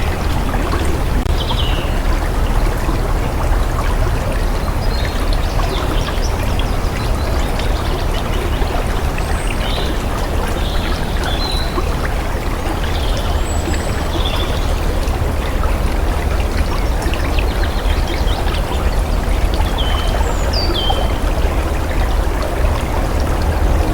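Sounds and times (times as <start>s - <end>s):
deep rumble: 0.0s - 5.6s, 21.0s - 23.9s
running water flowing: 0.0s - 23.9s.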